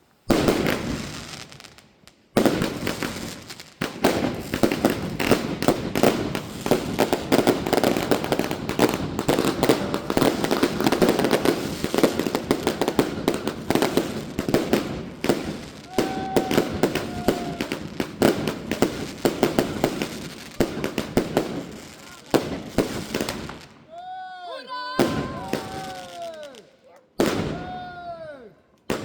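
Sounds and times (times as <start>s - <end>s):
firework bang: 0.3s - 1.2s, 25.0s - 26.1s, 27.2s - 27.8s
rapid firework cracks and pops: 0.3s - 23.8s, 25.0s - 26.6s, 28.7s - 29.0s.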